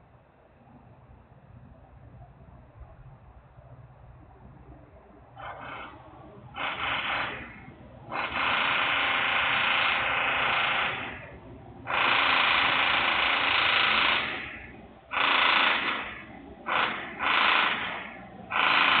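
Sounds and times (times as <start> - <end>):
loud industrial machinery: 5.4 - 19.0.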